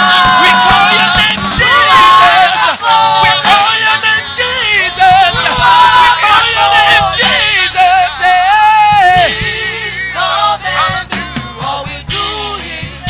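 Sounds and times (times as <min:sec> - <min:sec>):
person singing: 0:00.0 - 0:13.0
worship music: 0:00.0 - 0:13.0.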